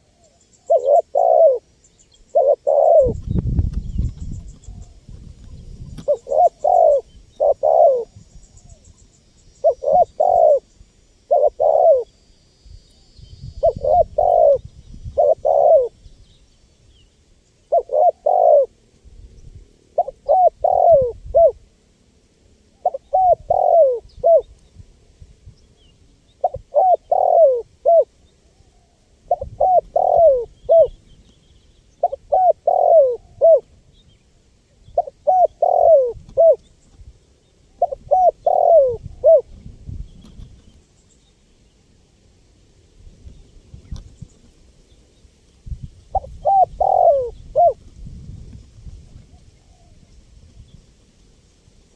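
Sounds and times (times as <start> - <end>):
dove cooing: 0.0 - 8.8, 9.6 - 12.2, 13.5 - 16.0, 17.7 - 18.8, 19.8 - 21.7, 22.7 - 24.6, 26.3 - 31.2, 31.9 - 33.8, 34.8 - 36.7, 37.7 - 40.4, 46.1 - 48.4.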